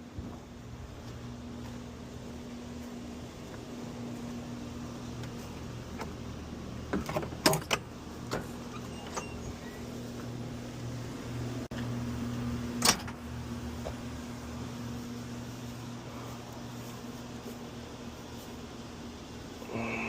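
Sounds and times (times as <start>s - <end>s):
steady low hum: 0.0s - 20.0s
sharp clicks and knocks: 6.9s - 9.3s.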